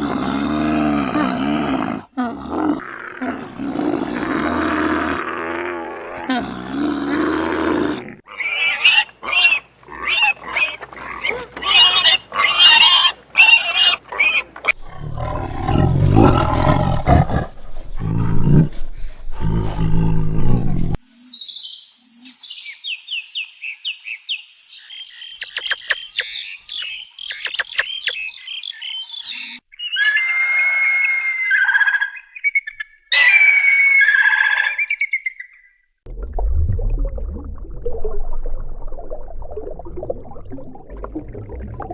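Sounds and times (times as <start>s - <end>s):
big cat roar: 0.0s - 8.2s, 14.7s - 21.0s.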